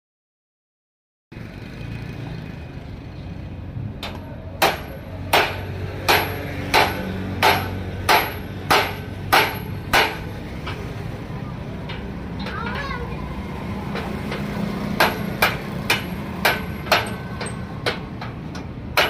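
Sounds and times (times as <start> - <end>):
low workshop hum: 2.8 - 19.0
hammer striking metal: 4.0 - 10.9, 13.9 - 19.0.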